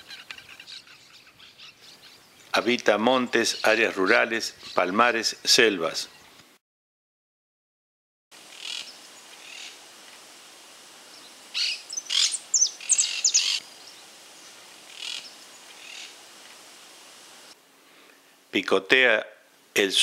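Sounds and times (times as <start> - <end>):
birds chirping: 0.0 - 6.4, 11.1 - 16.2
faint steady hiss: 8.4 - 20.0.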